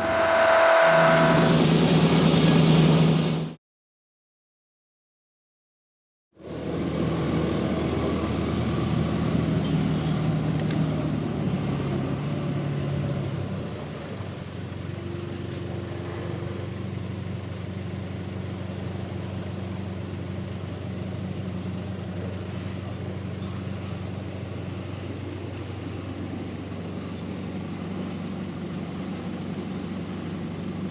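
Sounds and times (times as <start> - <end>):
higher steady tone: 0.0 - 3.4
sawmill machinery humming: 0.0 - 3.6, 6.4 - 30.9.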